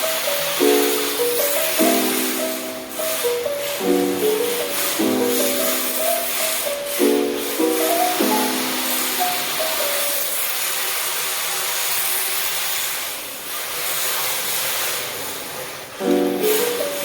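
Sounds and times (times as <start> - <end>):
background music with plucked notes: 0.0 - 10.4, 16.0 - 17.0
rc car tires hissing while sliding: 0.0 - 17.0.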